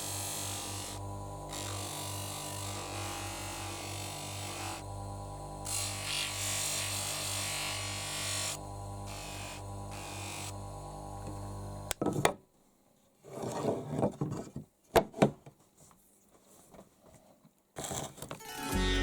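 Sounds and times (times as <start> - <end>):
background music: 18.4 - 19.0.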